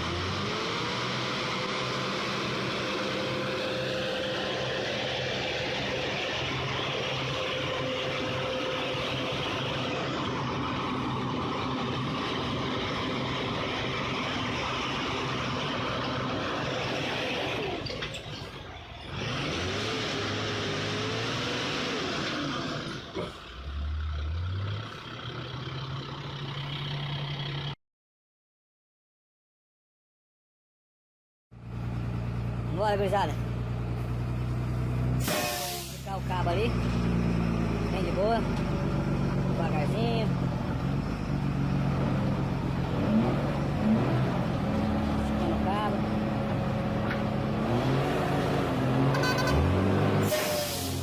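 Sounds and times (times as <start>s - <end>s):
diesel engine running: 0.0s - 27.8s, 31.6s - 51.0s
engine whine: 0.0s - 27.8s.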